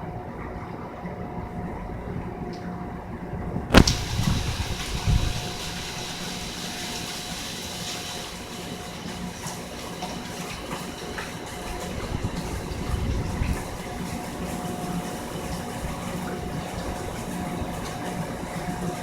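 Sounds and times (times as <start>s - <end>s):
hurricane wind and rain rushing: 3.3s - 19.0s
sharp knock: 3.7s - 4.0s.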